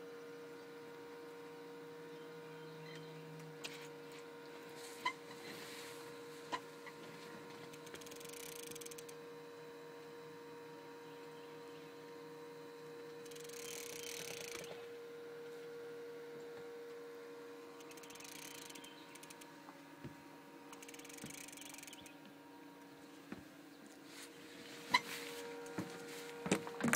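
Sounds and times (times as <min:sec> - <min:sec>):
faint boat motor hum: 0:00.0 - 0:26.9
sharp clicks: 0:17.8 - 0:19.5, 0:20.7 - 0:22.2.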